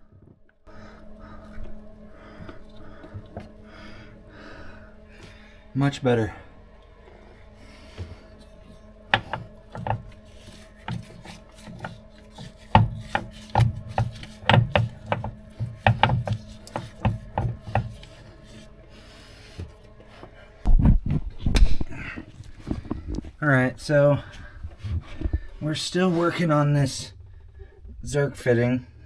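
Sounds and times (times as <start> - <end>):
grease gun clicking and scraping: 9.2 - 18.2.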